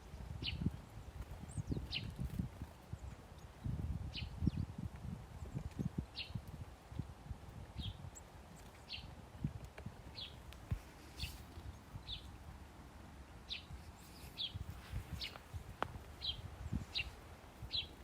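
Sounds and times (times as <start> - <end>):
small bird chirping: 0.1 - 4.7, 5.4 - 6.5, 7.8 - 9.1, 10.1 - 10.4, 11.0 - 12.4, 13.4 - 15.5, 16.2 - 18.0.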